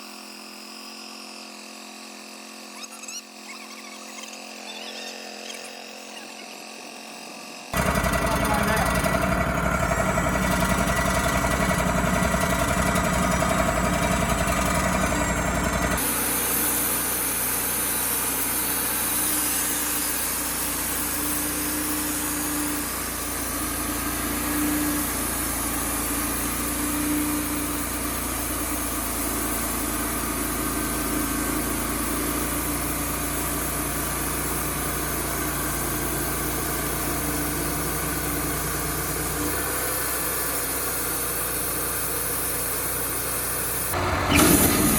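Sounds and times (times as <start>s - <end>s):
even hum with wavering tone: 0.0s - 7.7s
sawmill engine running: 4.3s - 44.9s.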